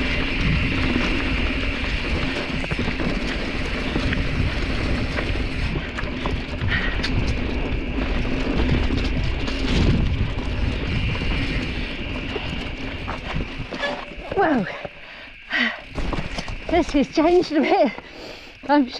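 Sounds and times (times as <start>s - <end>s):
bike rattling on dirt trail: 0.0s - 18.9s
clicks and knocks from rocks: 15.9s - 18.1s.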